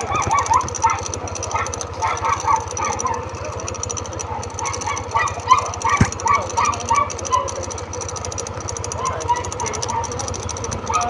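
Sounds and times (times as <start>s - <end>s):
dog yapping: 0.0s - 7.8s, 8.9s - 10.2s
scooter engine running: 0.0s - 11.0s.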